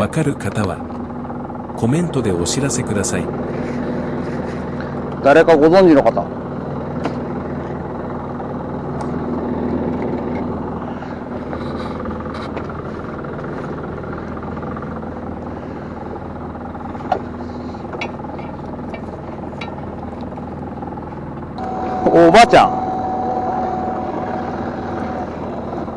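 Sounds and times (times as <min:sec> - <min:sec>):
boat engine humming: 0:00.0 - 0:25.9
light clicks and knocks: 0:17.0 - 0:20.5.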